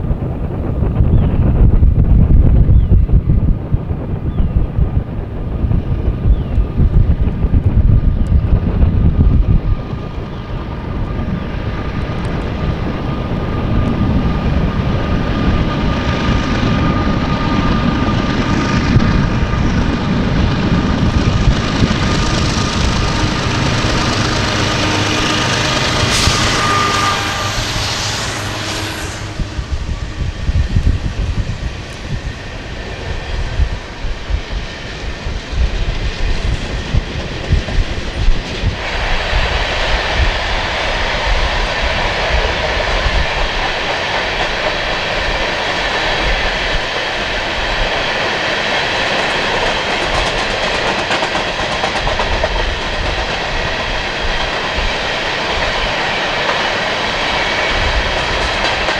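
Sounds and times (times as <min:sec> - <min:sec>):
diesel locomotive: 0:00.0 - 0:58.9
train wheels clacking over rail joints: 0:10.0 - 0:29.6, 0:34.9 - 0:58.9.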